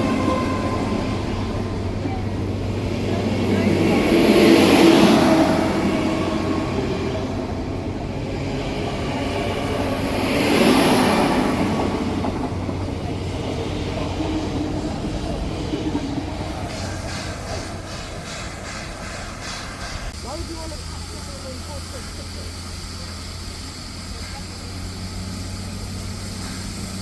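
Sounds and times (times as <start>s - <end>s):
train passing: 0.0s - 27.0s
wheel and rail noise: 0.0s - 27.0s.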